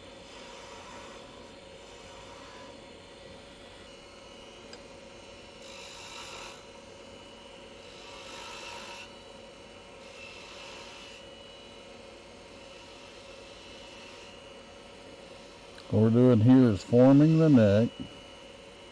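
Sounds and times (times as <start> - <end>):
wood lathe humming: 0.0 - 18.4
chisel cutting wood: 0.3 - 2.8, 5.7 - 6.6.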